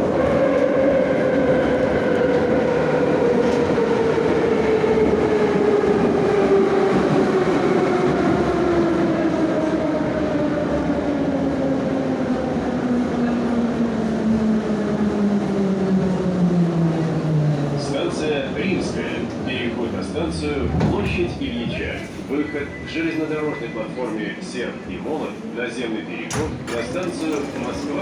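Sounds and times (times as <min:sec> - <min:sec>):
wheels rumbling on rails: 0:12.0 - 0:23.6, 0:26.5 - 0:28.0.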